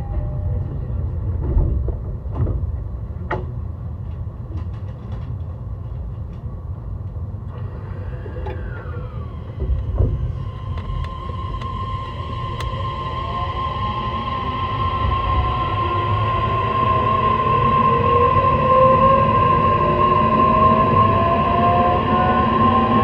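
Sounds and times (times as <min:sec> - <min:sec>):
train wheels rumbling: 0:00.0 - 0:23.0
high-pitched motor tone: 0:07.9 - 0:23.0.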